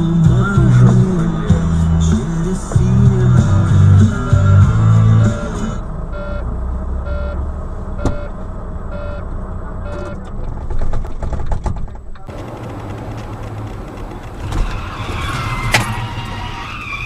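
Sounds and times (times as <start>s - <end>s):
vehicle rumble: 0.0s - 17.0s
short electronic beeps: 5.2s - 7.4s, 8.0s - 10.2s
clatter of clicks and knocks: 9.9s - 14.8s.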